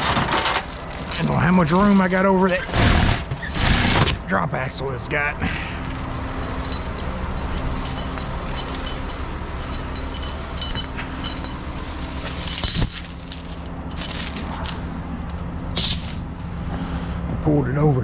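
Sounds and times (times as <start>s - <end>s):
diesel engine running: 0.0s - 18.0s
light metallic clinks: 5.8s - 16.1s.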